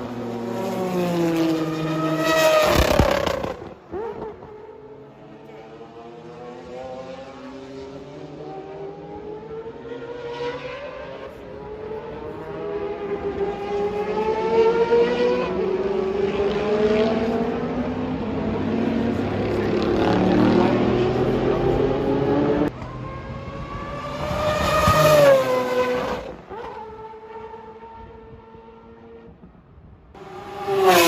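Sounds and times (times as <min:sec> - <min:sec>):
racing car engine accelerating: 0:05.5 - 0:29.3, 0:30.2 - 0:31.0.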